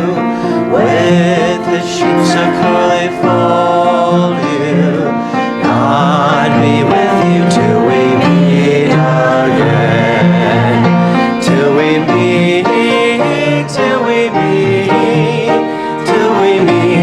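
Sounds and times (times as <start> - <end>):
choir singing a hymn: 0.0 - 17.0
instrumental accompaniment: 0.0 - 17.0.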